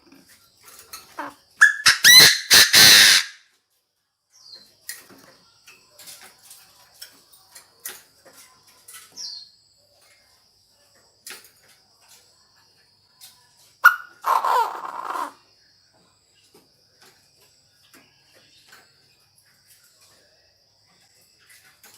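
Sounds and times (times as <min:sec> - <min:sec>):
francolin call: 0:00.9 - 0:03.4, 0:13.8 - 0:15.4.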